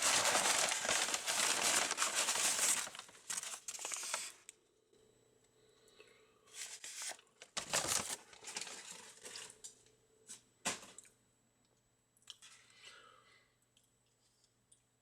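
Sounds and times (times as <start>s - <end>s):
paper packaging crinkling: 0.0s - 4.4s, 6.6s - 9.6s.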